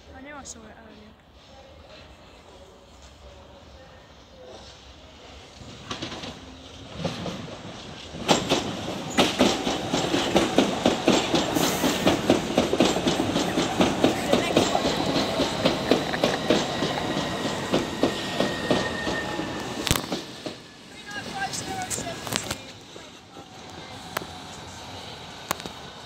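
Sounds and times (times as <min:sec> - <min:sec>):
train wheels clicking over rail joints: 0:05.6 - 0:26.0.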